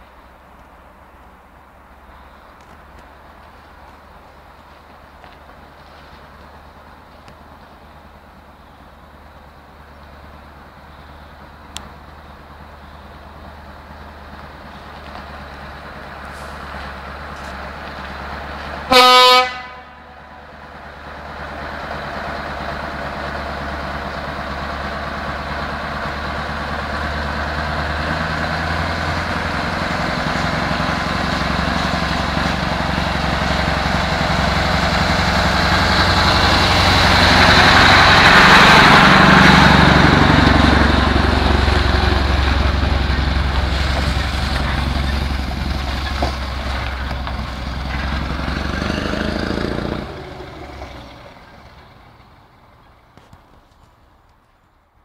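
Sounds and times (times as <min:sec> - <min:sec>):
diesel truck engine running: 0:00.0 - 0:53.8
truck air horn blast: 0:18.9 - 0:20.4.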